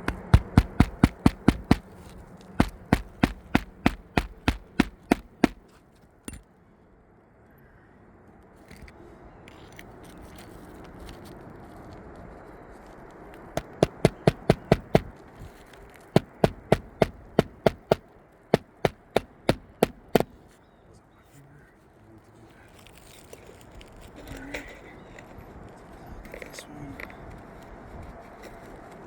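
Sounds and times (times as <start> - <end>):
hammer blows on shingle roof: 0.0 - 1.9, 2.6 - 5.6, 13.6 - 15.1, 16.2 - 18.0, 18.6 - 20.4.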